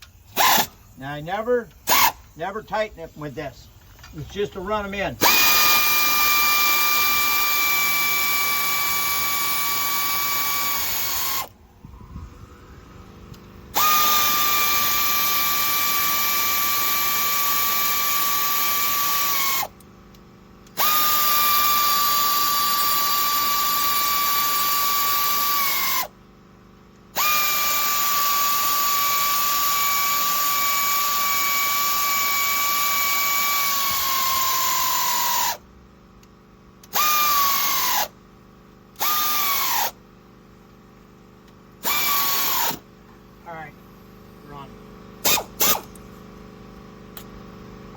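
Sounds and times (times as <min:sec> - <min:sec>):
air ratchet whining: 0:00.0 - 0:26.2, 0:26.9 - 0:38.2, 0:38.8 - 0:40.1, 0:41.4 - 0:42.9, 0:45.2 - 0:46.1.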